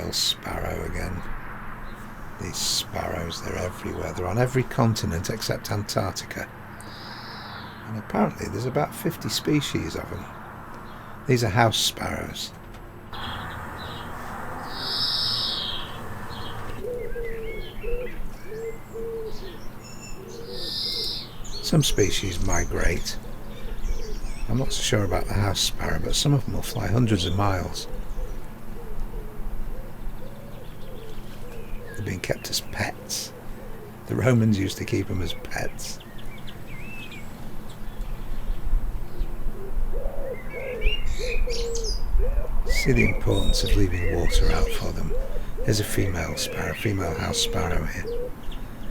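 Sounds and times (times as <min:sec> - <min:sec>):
high buzzy bird trill: 0:00.0 - 0:48.9
pigeon cooing: 0:13.2 - 0:25.4, 0:26.0 - 0:36.7, 0:39.0 - 0:48.9.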